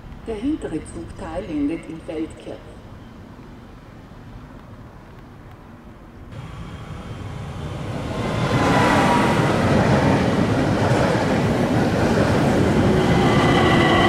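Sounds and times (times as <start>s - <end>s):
train rolling noise: 2.8s - 14.0s.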